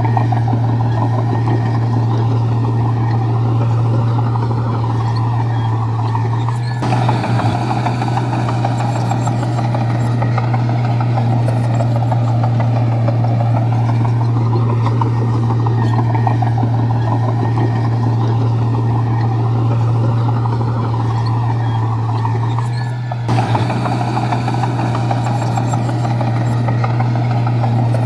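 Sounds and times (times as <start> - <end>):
bulldozer diesel engine running: 0.0 - 28.0.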